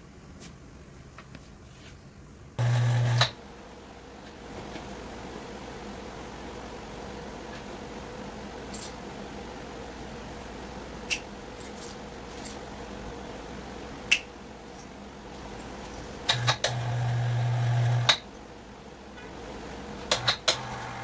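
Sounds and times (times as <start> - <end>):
electric device buzzing: 2.6 - 3.4, 16.3 - 18.2, 20.2 - 21.0.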